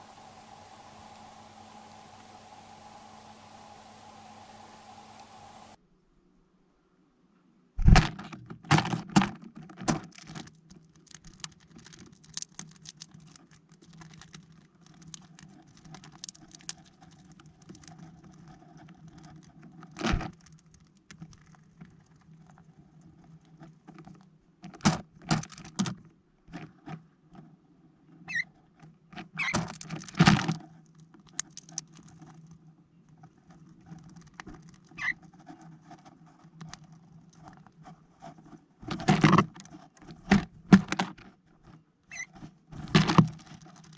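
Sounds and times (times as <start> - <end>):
birds tapping on plastic feeder: 0.0 - 5.8
high bird chirps: 0.0 - 5.8.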